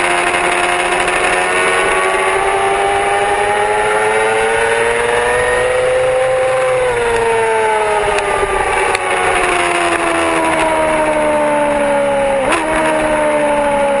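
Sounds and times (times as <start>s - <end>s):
motorcycle engine: 0.0s - 14.0s.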